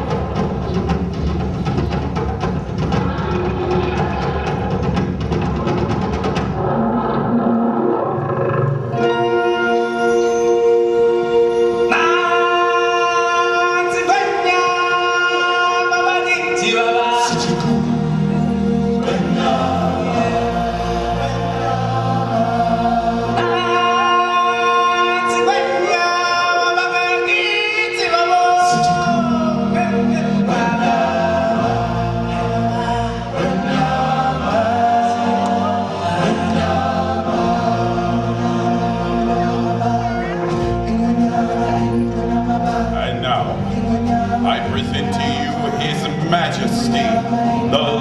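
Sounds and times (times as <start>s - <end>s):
sustained musical backing: 0.0s - 48.0s
choir singing: 2.8s - 48.0s
voice sliding between high notes: 6.4s - 10.4s.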